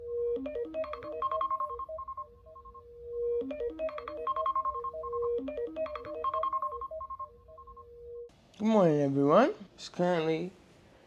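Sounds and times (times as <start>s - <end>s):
phone ringtone melody: 0.0s - 8.3s.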